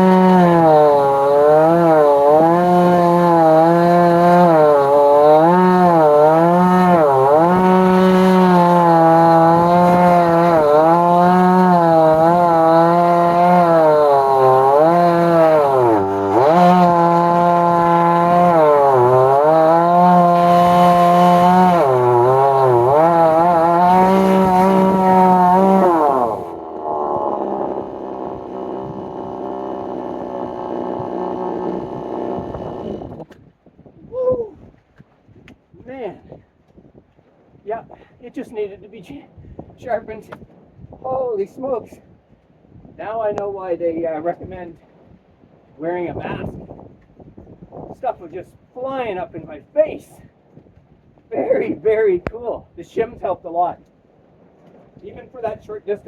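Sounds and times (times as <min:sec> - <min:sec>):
chainsaw idling: 0:00.0 - 0:33.3
chainsaw ripping through log: 0:00.0 - 0:33.4.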